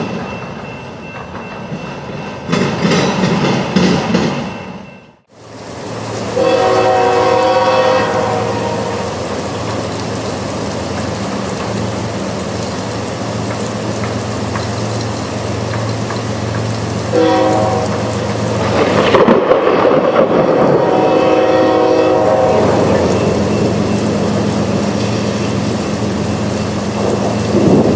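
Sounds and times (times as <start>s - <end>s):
low hum of train: 0.0s - 27.9s
rain hissing: 5.3s - 27.9s
locomotive horn blast: 6.3s - 9.4s, 17.1s - 25.3s
thunder crash: 18.4s - 25.0s, 26.9s - 27.9s.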